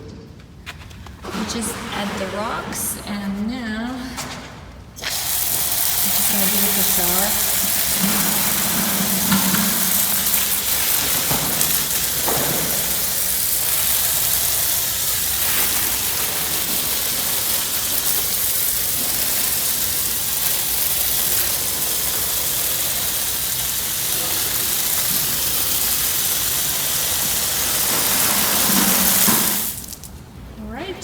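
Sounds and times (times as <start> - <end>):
water spraying onto soil and rocks: 5.0 - 30.2.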